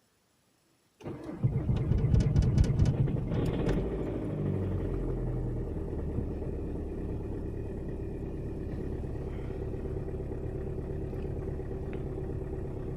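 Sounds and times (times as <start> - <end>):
diesel engine idling: 3.8 - 12.9.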